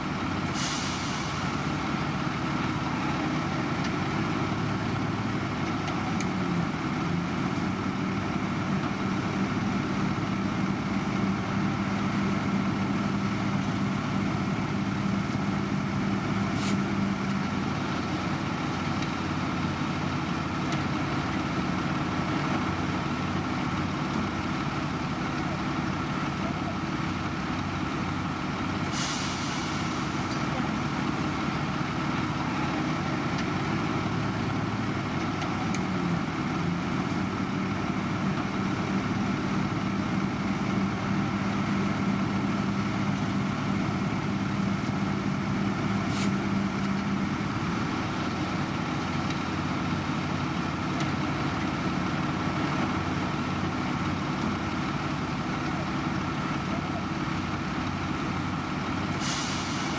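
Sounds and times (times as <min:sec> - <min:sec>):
air hiss: 0:28.9 - 0:30.2, 0:59.2 - 0:59.9.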